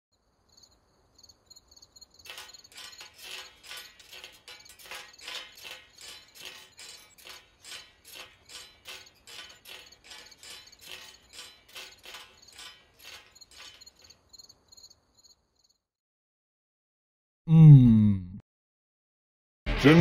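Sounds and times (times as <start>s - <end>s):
crickets chirping: 0.1s - 15.8s.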